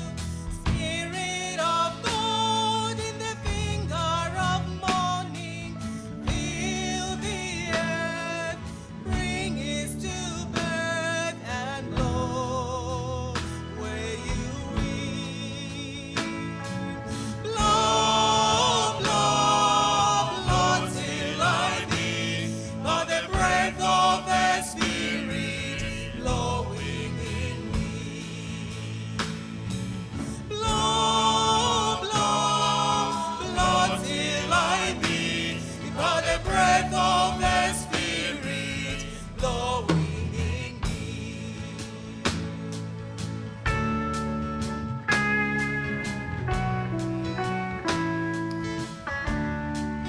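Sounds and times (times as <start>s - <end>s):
group singing a hymn: 0.0s - 43.9s
instrumental accompaniment: 11.4s - 50.0s.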